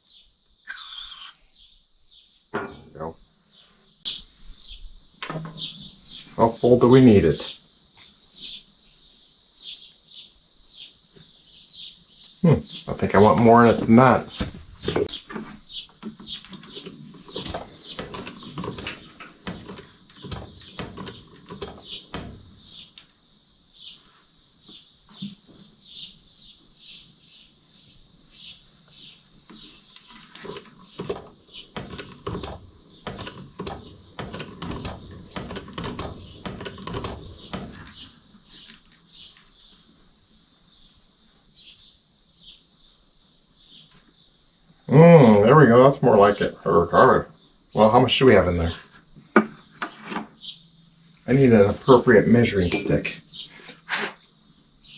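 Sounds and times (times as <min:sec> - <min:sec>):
insect chirring: 0:00.0 - 0:03.2, 0:15.0 - 0:54.9
hand pump clicks and knocks: 0:30.5 - 0:37.9.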